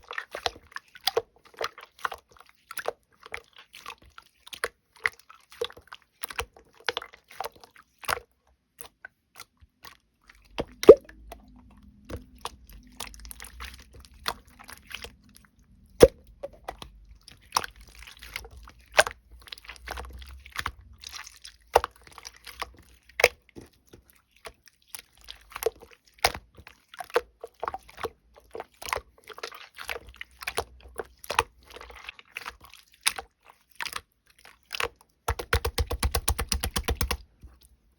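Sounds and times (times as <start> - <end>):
slime squished by hand: 33.8 - 37.6.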